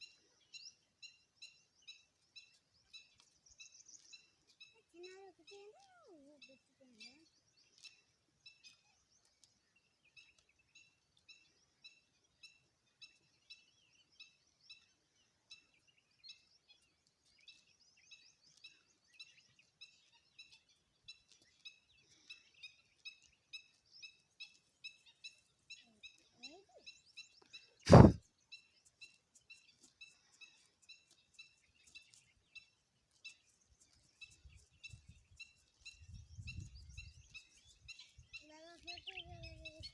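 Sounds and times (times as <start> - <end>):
loud thump: 27.9 - 28.2.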